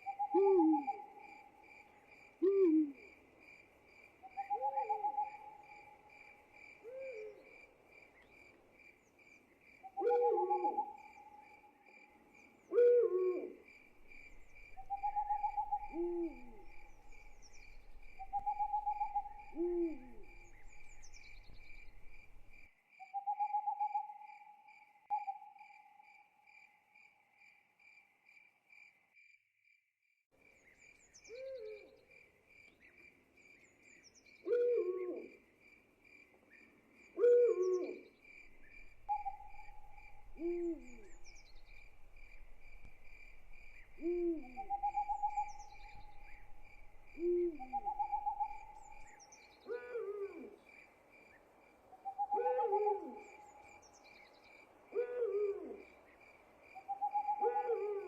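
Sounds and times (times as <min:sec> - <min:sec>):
owl hooting: 0:00.0 - 0:01.5, 0:02.4 - 0:03.1, 0:04.3 - 0:06.0, 0:06.8 - 0:07.5, 0:09.9 - 0:11.5, 0:12.7 - 0:22.5, 0:31.3 - 0:31.9, 0:34.4 - 0:35.4, 0:37.2 - 0:50.6, 0:52.0 - 0:53.8, 0:54.9 - 0:55.9, 0:56.8 - 0:58.0
crickets chirping: 0:00.0 - 0:29.4, 0:30.4 - 0:58.0.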